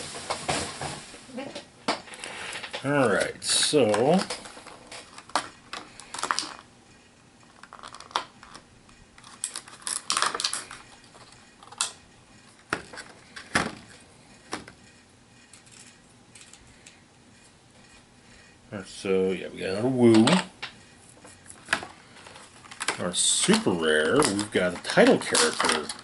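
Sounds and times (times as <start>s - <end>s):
plastic figures clicking and clattering: 2.0s - 6.6s, 7.6s - 12.0s, 21.6s - 26.0s.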